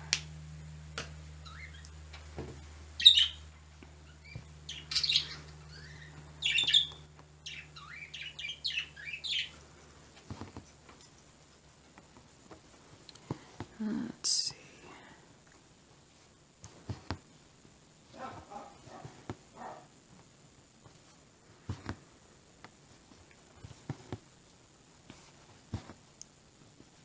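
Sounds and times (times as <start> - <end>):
pet birds chirping: 1.2 - 2.2, 2.9 - 9.7, 18.2 - 20.0.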